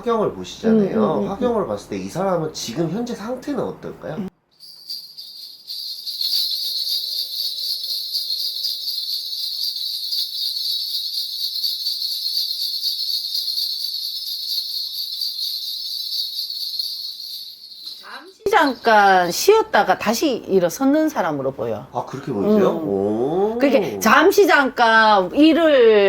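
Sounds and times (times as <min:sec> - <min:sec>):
brass bells shaken jingling: 0:04.6 - 0:19.6.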